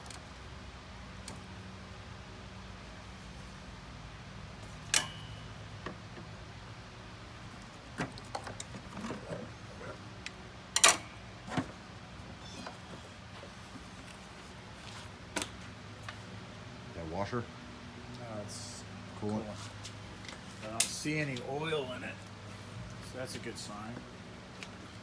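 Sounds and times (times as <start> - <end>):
low steady hum: 0.0 - 25.0
tools and parts clanking: 4.6 - 6.4, 7.4 - 15.6.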